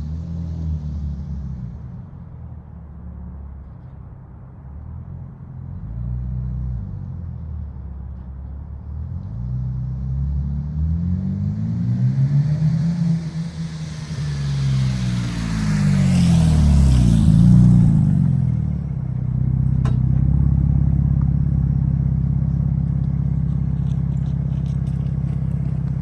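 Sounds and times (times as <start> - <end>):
car exhaust rumble: 0.0 - 26.0.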